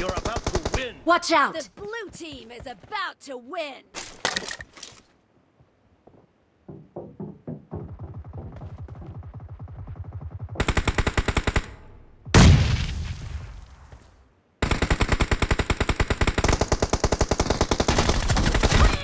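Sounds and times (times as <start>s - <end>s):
video game automatic gunfire: 0.0s - 0.9s, 7.9s - 11.8s, 14.6s - 19.0s.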